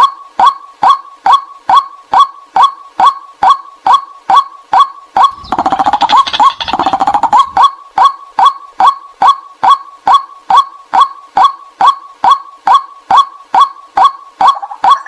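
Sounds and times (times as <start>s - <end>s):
waterhen calling: 5.2s - 7.7s.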